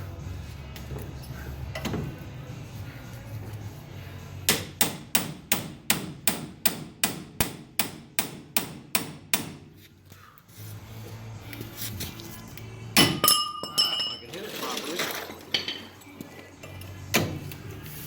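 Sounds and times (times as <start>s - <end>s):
hammer striking metal: 4.5s - 9.6s, 13.0s - 13.7s.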